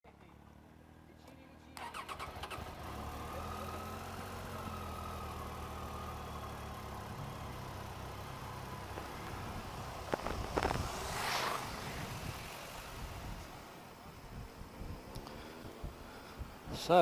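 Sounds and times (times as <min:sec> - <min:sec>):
motorcycle engine idling: 0:00.1 - 0:10.7.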